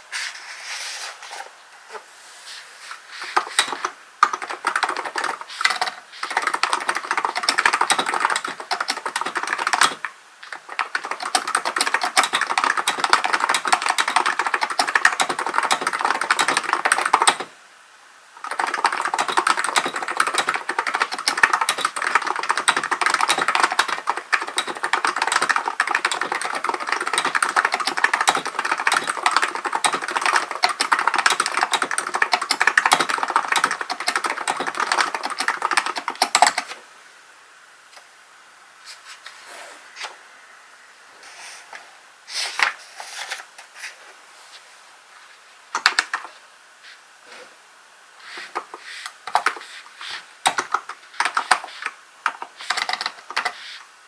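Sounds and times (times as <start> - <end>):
fast keyboard typing: 3.2 - 17.5, 18.4 - 36.8, 45.8 - 46.3, 49.3 - 53.8.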